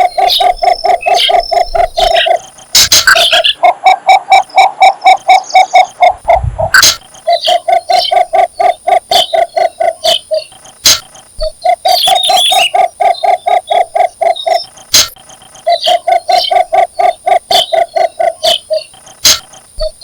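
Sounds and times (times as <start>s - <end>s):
bird calling low notes: 0.0s - 20.0s
sharp clicks: 6.9s - 20.0s.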